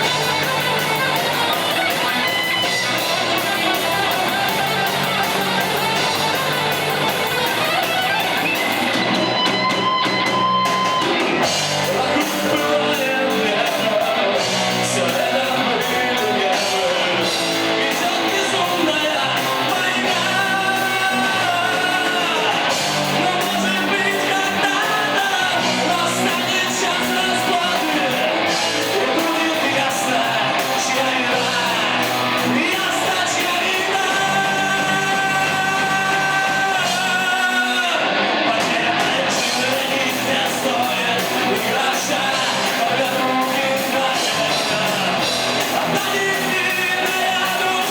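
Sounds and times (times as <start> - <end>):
bass guitar: 0.0 - 47.9
drums: 0.0 - 47.9
electric guitars: 0.0 - 47.9
person singing: 10.7 - 47.9.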